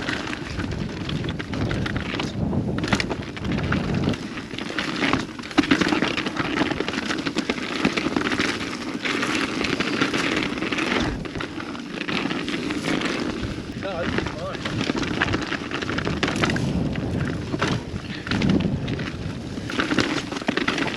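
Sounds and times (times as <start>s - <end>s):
wind rushing on microphone: 0.0s - 4.5s, 13.4s - 20.3s
crackling tyres and bike rattle: 0.0s - 20.9s.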